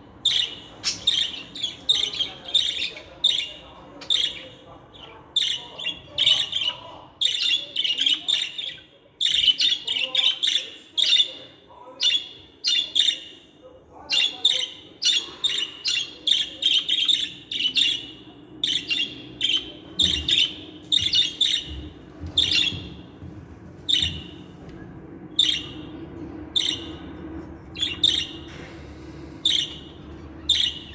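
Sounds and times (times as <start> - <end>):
faint low hum: 0.0 - 30.9
budgerigars chirping: 0.2 - 11.4, 14.1 - 21.8, 22.4 - 22.9, 23.9 - 24.4, 25.4 - 25.9, 26.6 - 27.0, 27.8 - 28.5, 29.4 - 30.9.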